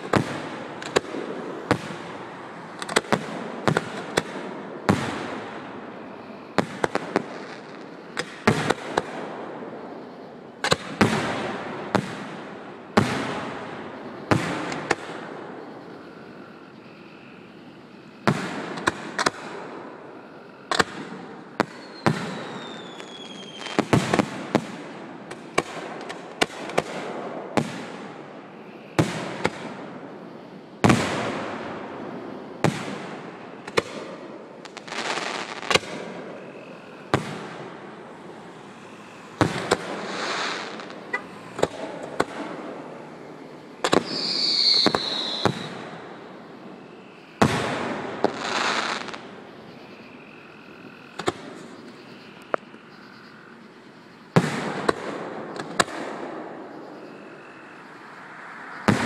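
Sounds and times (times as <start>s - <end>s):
fireworks bursting with bangs: 0.0s - 15.6s, 18.2s - 19.9s, 20.7s - 30.2s, 30.8s - 49.4s, 54.4s - 56.6s
whistling firework: 0.0s - 16.7s, 20.6s - 30.2s, 30.8s - 49.4s, 54.4s - 59.0s
firework crackling hiss: 32.6s - 49.3s.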